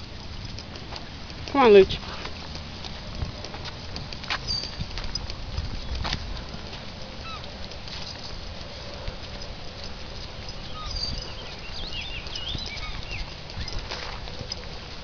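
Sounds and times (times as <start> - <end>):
low wind rumble: 0.0 - 15.0
soft footfalls: 0.0 - 15.0
small bird chirping: 4.4 - 6.0, 7.2 - 8.3, 10.2 - 13.9.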